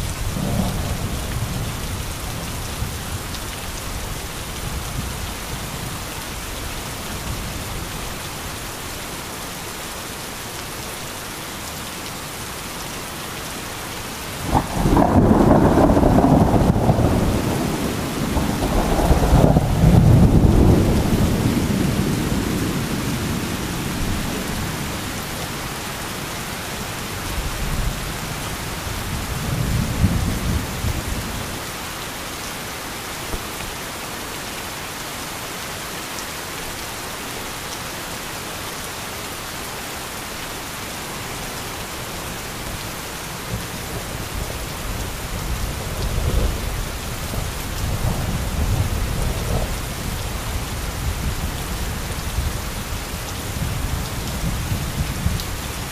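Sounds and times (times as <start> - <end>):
heavy rain: 0.0 - 55.9
rolling thunder: 0.3 - 2.1, 14.5 - 24.8, 45.3 - 49.9.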